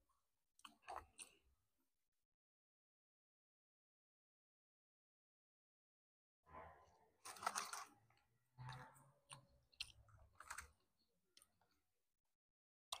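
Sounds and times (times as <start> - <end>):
person chewing and crunching food: 9.3 - 11.8.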